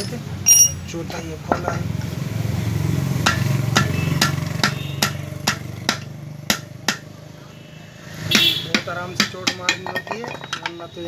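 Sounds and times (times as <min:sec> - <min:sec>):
hammer tapping on motor casing: 0:03.2 - 0:07.1, 0:08.3 - 0:10.8.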